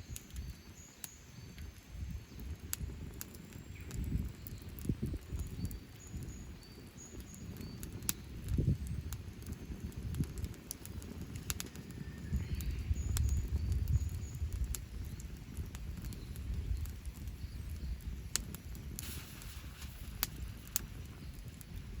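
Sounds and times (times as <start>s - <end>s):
campfire crackling and popping: 0.0s - 22.0s
bird chirps: 12.0s - 15.2s.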